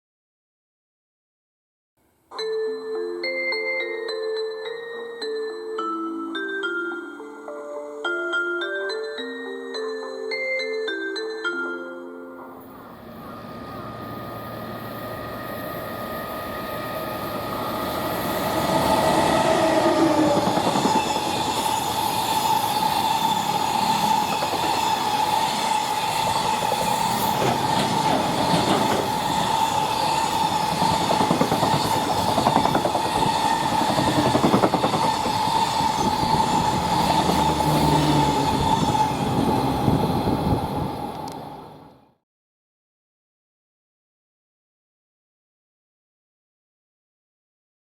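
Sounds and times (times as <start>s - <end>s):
electric locomotive whine: 12.4s - 42.1s
wheels ringing squeal: 12.8s - 40.0s
train wagons clickety-clack: 18.4s - 40.0s.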